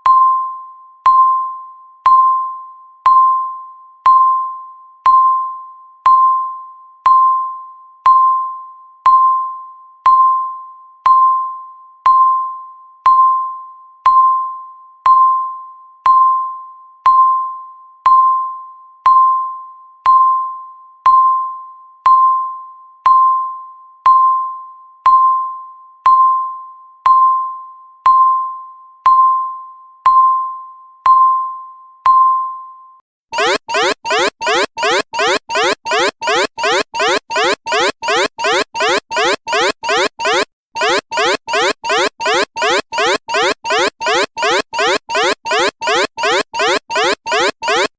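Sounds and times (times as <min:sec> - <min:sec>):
countdown timer beeping: 0:33.4 - 0:47.9.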